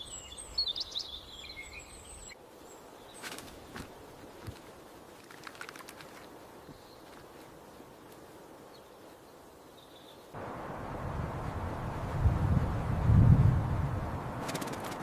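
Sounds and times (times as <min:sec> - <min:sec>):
faint high bird chirps: 0:00.0 - 0:03.3
rushing wind noise: 0:10.4 - 0:15.0.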